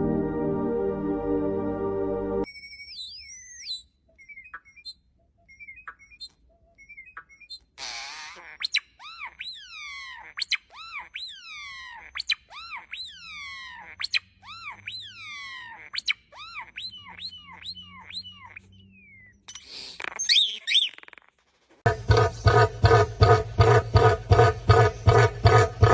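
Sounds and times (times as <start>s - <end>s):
bird whistled falling calls: 2.5s - 21.2s
harsh bird burst and chirps: 19.5s - 21.4s.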